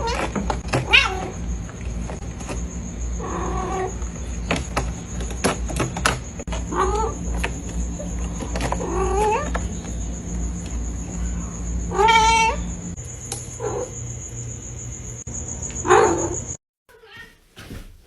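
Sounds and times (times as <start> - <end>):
cat meowing: 0.8 - 1.3, 11.9 - 12.6, 16.9 - 17.4.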